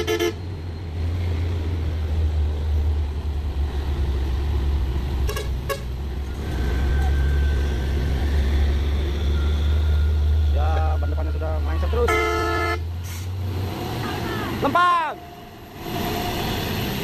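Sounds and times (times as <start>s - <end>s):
truck horn toots: 0.0s - 0.4s, 5.2s - 7.1s, 11.9s - 12.9s
truck diesel engine drone: 0.0s - 17.0s.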